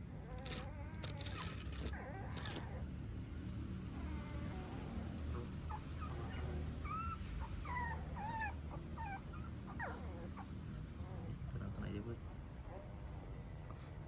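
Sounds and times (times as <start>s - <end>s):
puppies whimpering: 0.3s - 2.8s, 3.9s - 11.2s.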